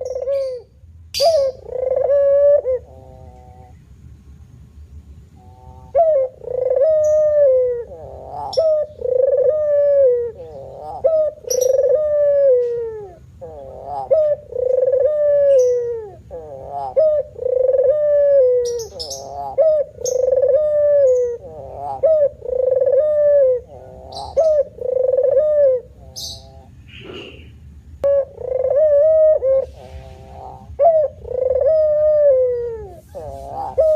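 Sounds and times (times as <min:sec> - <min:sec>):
dove cooing: 0:00.0 - 0:03.8, 0:05.4 - 0:33.9
small birds chirping: 0:00.0 - 0:33.9.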